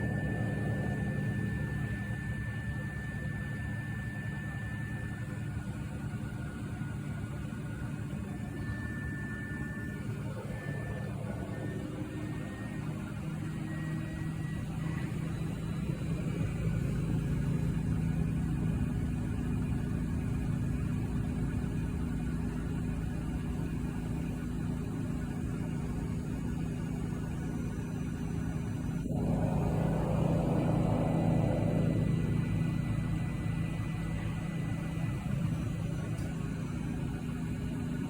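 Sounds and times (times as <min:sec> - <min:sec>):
washing machine spinning: 0:00.0 - 0:38.0.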